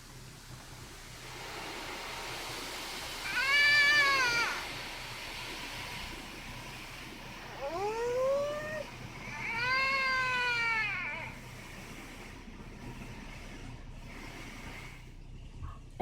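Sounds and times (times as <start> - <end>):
car wash hiss: 0.0 - 15.4
cat meowing: 3.2 - 4.7.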